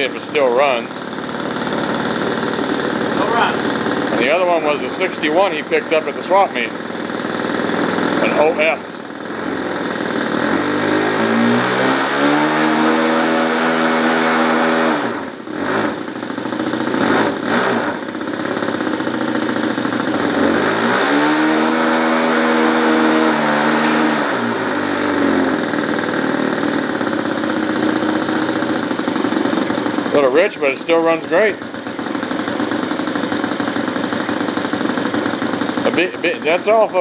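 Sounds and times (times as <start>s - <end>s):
model airplane engine revving: 0.0s - 37.0s.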